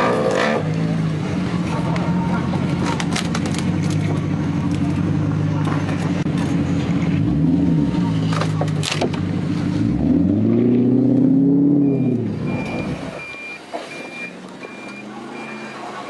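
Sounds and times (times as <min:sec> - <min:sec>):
car engine revving: 0:00.0 - 0:13.2
high electronic beeps: 0:11.8 - 0:15.8.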